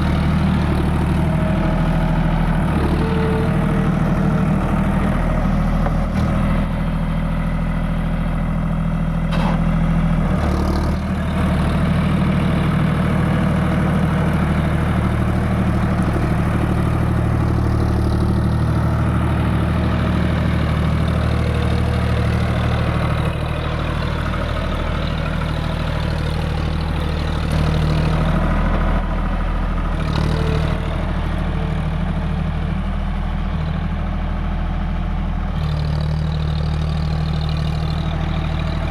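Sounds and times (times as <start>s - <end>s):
diesel tractor engine running: 0.0s - 38.9s.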